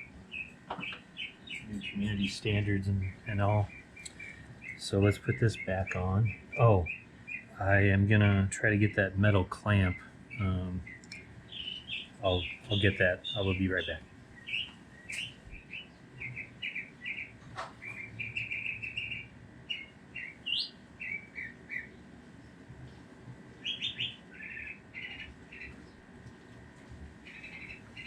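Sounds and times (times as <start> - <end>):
small songbird chirping: 0.0 - 22.1, 22.9 - 26.1, 27.2 - 28.0.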